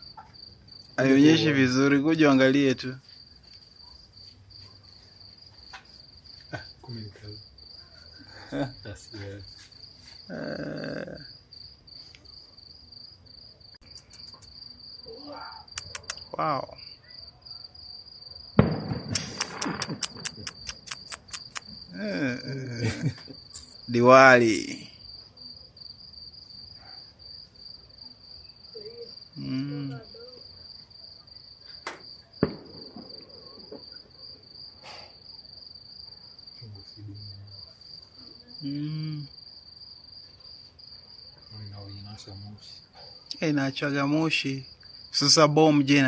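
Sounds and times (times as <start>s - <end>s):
crickets chirping: 0.0s - 46.0s
firework bang: 18.6s - 20.5s, 31.8s - 34.2s
fireworks crackling pops: 18.6s - 21.8s, 31.8s - 34.2s.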